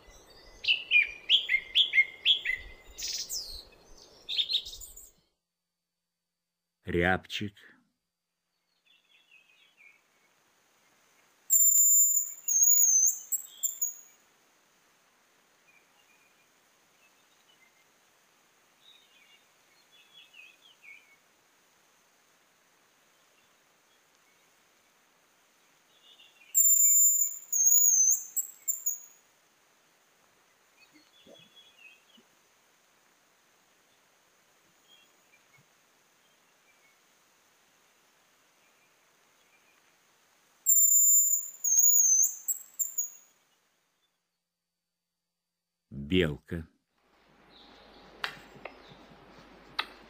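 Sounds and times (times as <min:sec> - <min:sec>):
faint high chirps: 0:11.5 - 0:14.2, 0:26.0 - 0:29.2, 0:40.6 - 0:44.2.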